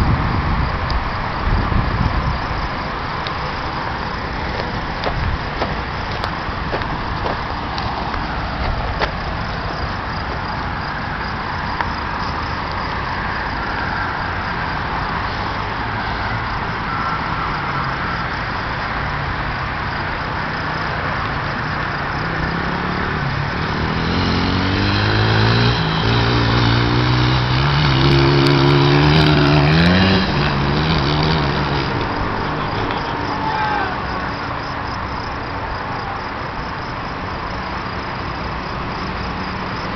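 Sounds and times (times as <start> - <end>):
dirt bike engine running: 22.6 - 33.2.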